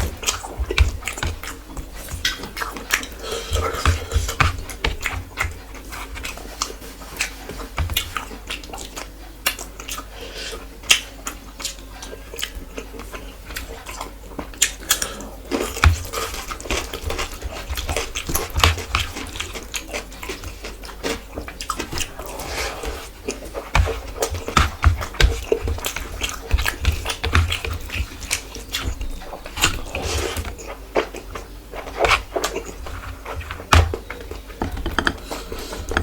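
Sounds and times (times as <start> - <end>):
wet chewing and lip smacks: 8.0 - 33.4.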